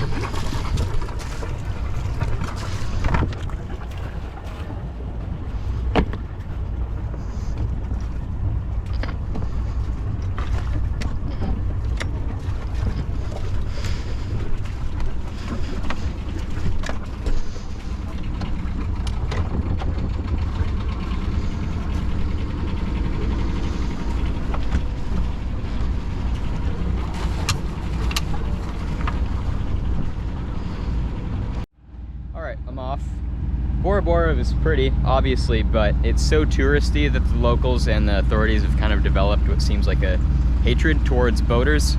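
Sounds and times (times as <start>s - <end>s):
water rushing: 0.0s - 31.6s, 32.5s - 41.9s
boat engine rumble: 0.0s - 41.9s
wind: 0.0s - 41.9s.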